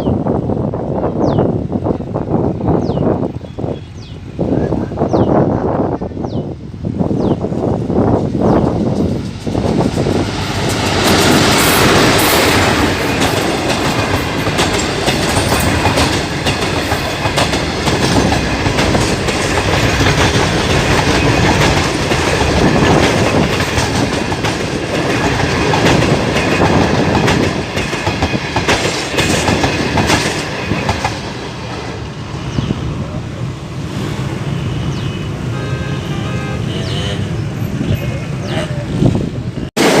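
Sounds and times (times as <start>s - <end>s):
train coaches rumbling: 0.0s - 40.0s
wheels clicking over rail joints: 8.7s - 31.9s.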